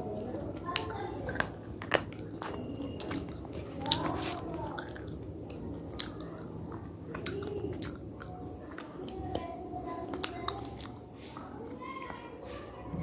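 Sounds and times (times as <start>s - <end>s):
person crunching hard material: 1.3s - 5.0s.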